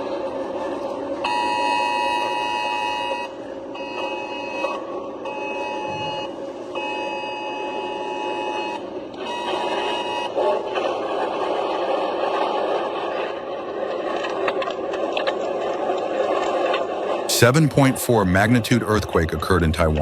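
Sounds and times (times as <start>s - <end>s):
electronic alarm tones: 1.2s - 10.4s.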